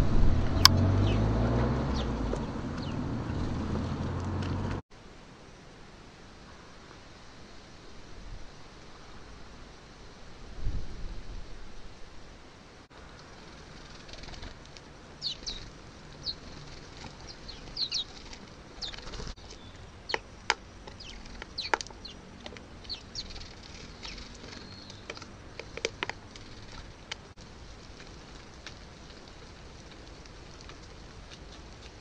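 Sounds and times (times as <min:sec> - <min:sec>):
birds chirping: 0:00.5 - 0:04.0, 0:13.2 - 0:27.3
steady hiss: 0:04.9 - 0:21.4.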